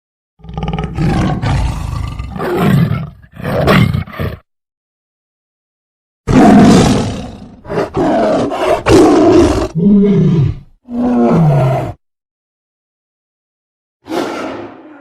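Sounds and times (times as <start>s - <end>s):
tiger roaring: 0.4s - 4.4s, 6.3s - 12.0s.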